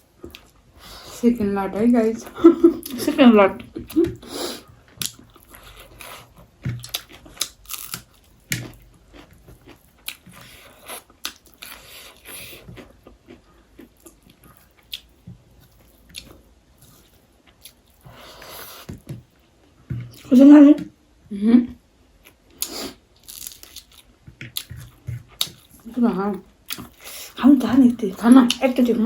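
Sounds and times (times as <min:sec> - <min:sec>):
person chewing food: 0:00.2 - 0:01.2, 0:03.6 - 0:20.3, 0:22.2 - 0:27.4.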